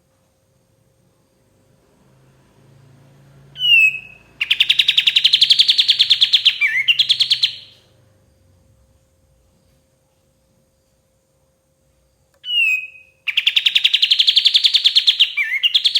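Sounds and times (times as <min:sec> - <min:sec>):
songbird whistle and trill: 0:03.6 - 0:07.9, 0:12.4 - 0:15.9.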